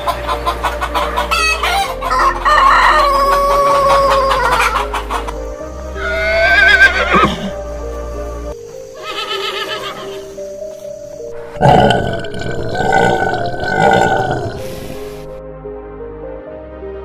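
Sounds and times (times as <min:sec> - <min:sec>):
background music: 0:00.0 - 0:17.0
rooster crowing: 0:01.4 - 0:04.9.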